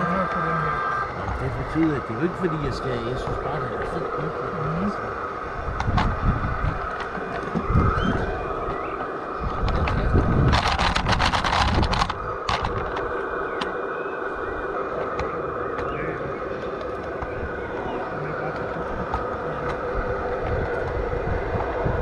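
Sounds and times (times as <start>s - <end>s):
model train motor whine: 0.0s - 22.0s
rapid clicking: 8.6s - 13.8s.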